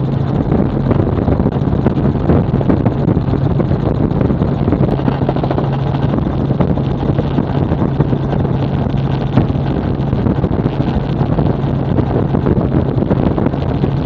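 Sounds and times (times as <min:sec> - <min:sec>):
helicopter engine and rotor drone: 0:00.0 - 0:14.0
wind buffeting microphone: 0:00.0 - 0:14.0.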